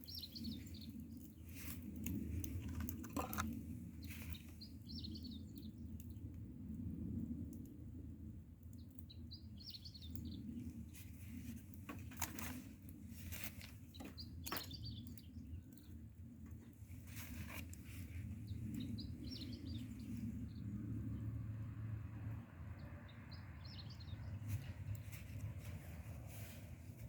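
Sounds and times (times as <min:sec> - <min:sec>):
small birds chirping: 0:00.0 - 0:06.3, 0:08.6 - 0:21.4, 0:22.4 - 0:27.0
bonfire crackling snaps: 0:00.0 - 0:21.2, 0:23.7 - 0:27.0
steady low rumble: 0:23.6 - 0:27.0.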